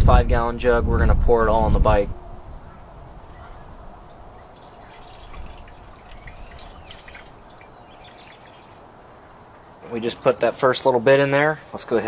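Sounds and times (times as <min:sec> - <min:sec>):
fuel trickling into tank: 0:02.5 - 0:09.8.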